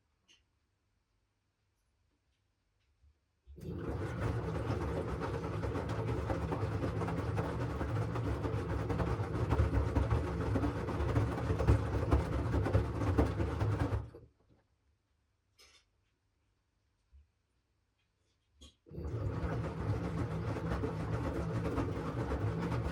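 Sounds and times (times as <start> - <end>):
laundry tumbling with knocking: 3.6 - 14.2, 19.0 - 22.9
washing machine drum turning: 3.6 - 14.2, 18.9 - 22.9.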